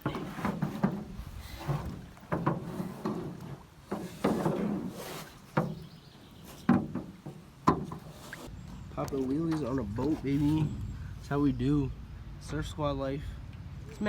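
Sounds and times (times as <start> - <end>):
hollow knocks against canoe hull: 0.0 - 8.5.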